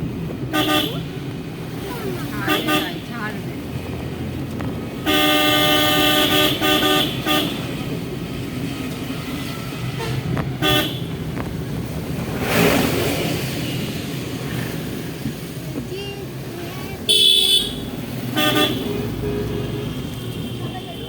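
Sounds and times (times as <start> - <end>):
passing traffic rush: 0.0 - 21.0
van engine and road noise: 0.0 - 21.0
vehicle horn honking: 0.5 - 1.1, 5.0 - 7.7, 10.0 - 11.1, 17.1 - 21.0.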